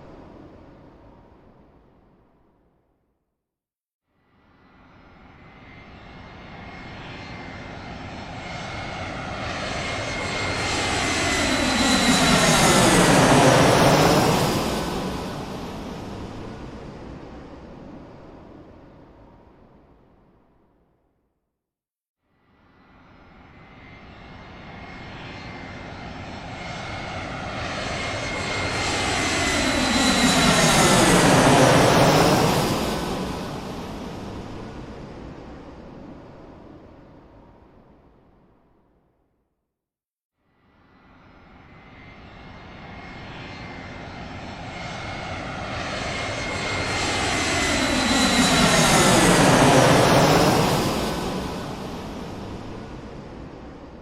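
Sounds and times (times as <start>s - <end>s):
airplane flying past: 4.4s - 19.6s, 22.7s - 37.5s, 40.7s - 54.0s.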